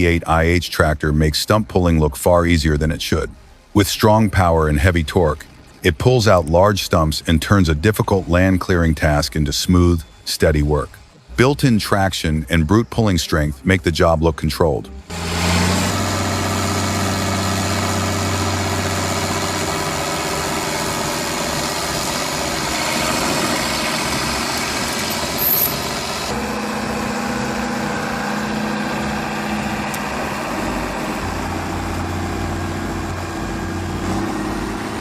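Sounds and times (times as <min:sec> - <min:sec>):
tractor diesel engine running: 0:15.0 - 0:35.0.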